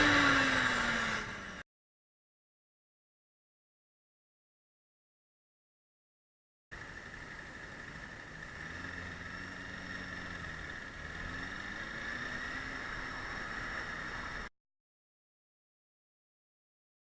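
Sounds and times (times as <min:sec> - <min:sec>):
motorcycle engine: 0:00.0 - 0:01.6, 0:06.7 - 0:14.5.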